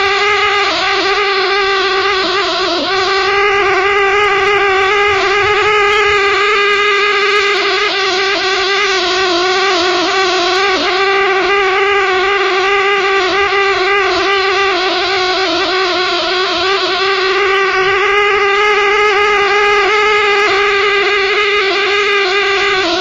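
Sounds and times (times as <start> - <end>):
loud pitched drone: 0.0 - 23.0.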